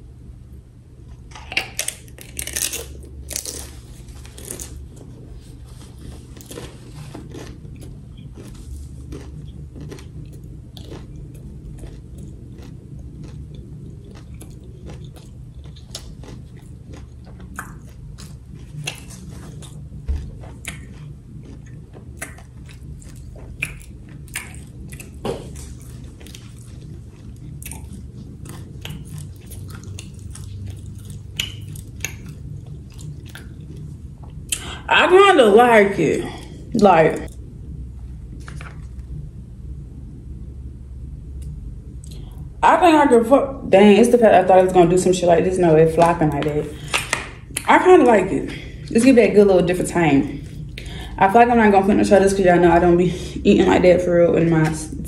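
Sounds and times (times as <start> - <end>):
low steady hum: 0.0 - 55.0
person chewing and crunching food: 1.1 - 34.9, 38.1 - 39.2, 41.4 - 42.6, 45.9 - 49.1, 50.2 - 51.2.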